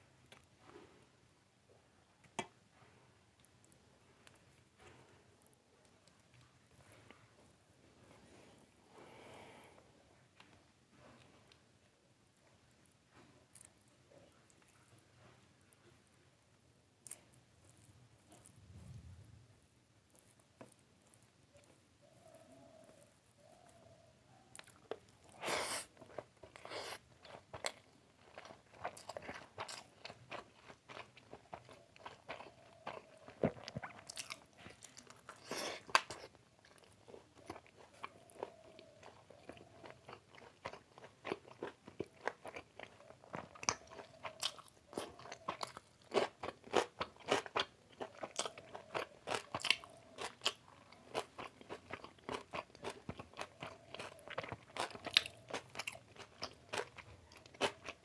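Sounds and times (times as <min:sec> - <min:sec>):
person chewing food: 0:20.1 - 0:58.0.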